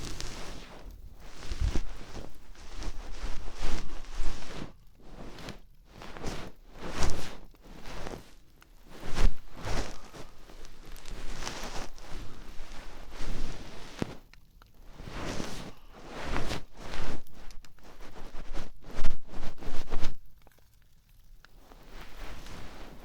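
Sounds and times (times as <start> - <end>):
scratching and rustling against ear: 0.0 - 23.0
microphone handling thumps: 1.2 - 4.6.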